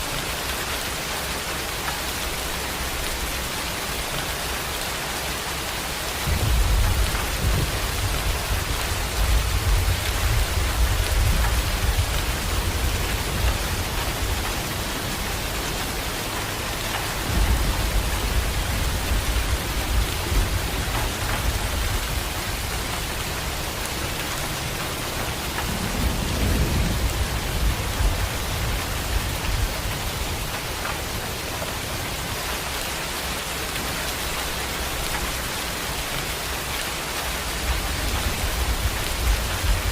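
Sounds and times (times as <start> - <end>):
heavy rain: 0.0 - 39.9
low rolls of thunder: 6.1 - 32.4, 37.6 - 39.9.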